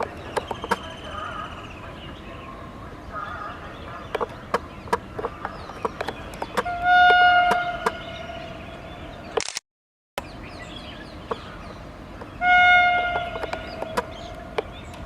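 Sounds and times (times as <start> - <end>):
sharp clicks: 0.0 - 0.9, 9.4 - 9.6
electric locomotive horn blast: 6.6 - 8.6, 12.4 - 13.9.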